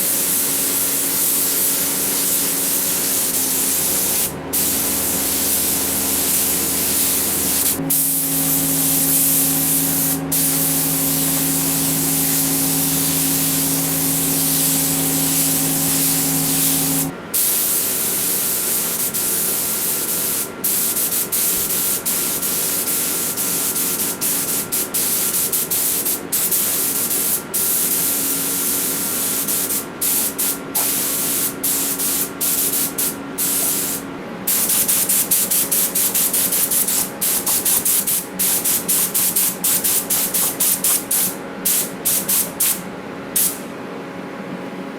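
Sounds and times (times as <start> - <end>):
paint spray hiss: 0.0 - 42.8, 43.4 - 43.6
steady low hum: 1.5 - 17.2.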